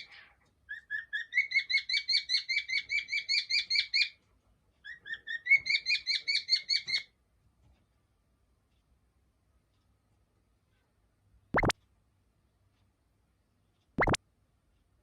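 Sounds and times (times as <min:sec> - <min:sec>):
cockatiel chirping: 0:00.0 - 0:04.2, 0:04.8 - 0:07.1.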